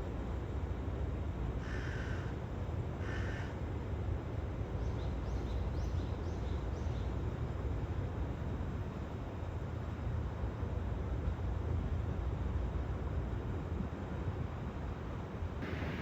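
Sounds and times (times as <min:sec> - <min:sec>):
low outdoor rumble: 0:09.8 - 0:16.0
harsh bird calls: 0:15.6 - 0:16.0.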